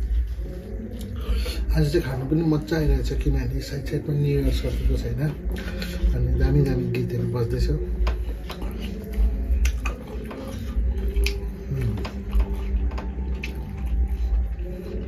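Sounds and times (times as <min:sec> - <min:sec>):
chewing and mouth clicks: 0:00.5 - 0:01.3, 0:08.0 - 0:15.0
food squishing by hand: 0:07.8 - 0:15.0.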